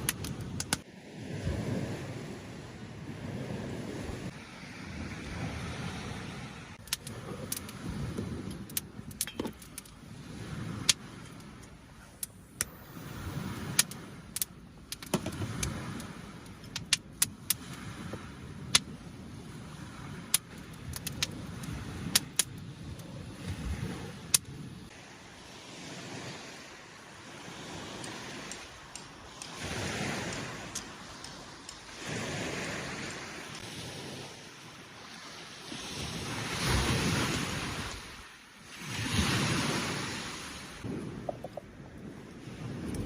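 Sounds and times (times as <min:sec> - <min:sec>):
small waves lapping at shore: 0:00.0 - 0:43.0
camping gear clicking and clinking: 0:08.4 - 0:10.0, 0:28.0 - 0:32.0.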